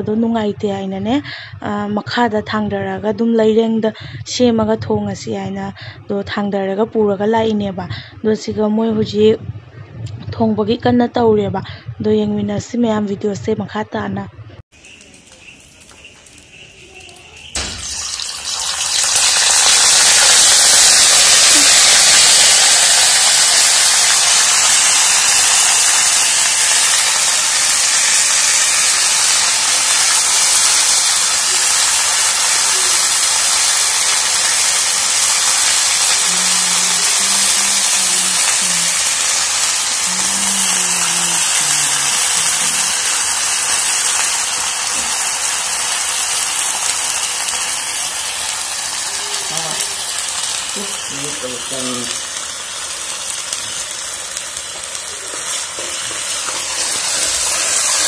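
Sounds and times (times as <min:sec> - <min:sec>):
food sizzling in hot oil: 0:14.7 - 0:58.0.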